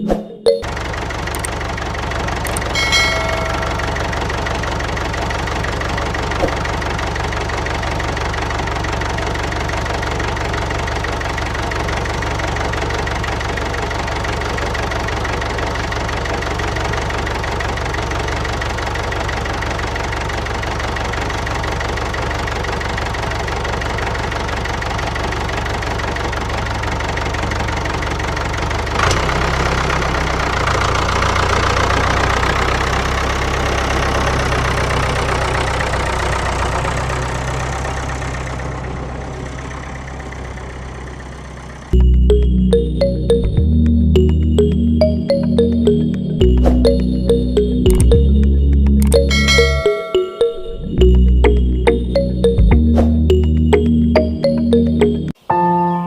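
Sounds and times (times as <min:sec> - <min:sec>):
engine idling: 0:00.6 - 0:43.6
short ringing chime: 0:02.5 - 0:04.5, 0:49.0 - 0:52.6.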